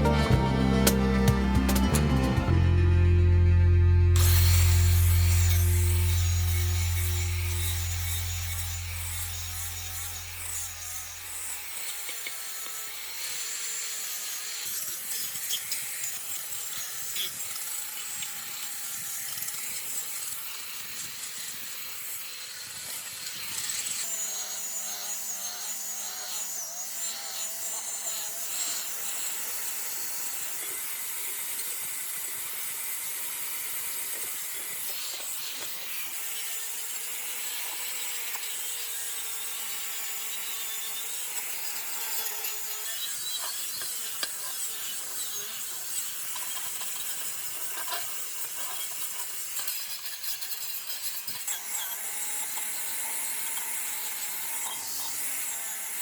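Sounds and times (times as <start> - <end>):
faint wavering whine: 3.0 - 10.3
abrasive tool scraping metal: 4.2 - 17.4, 40.4 - 56.0.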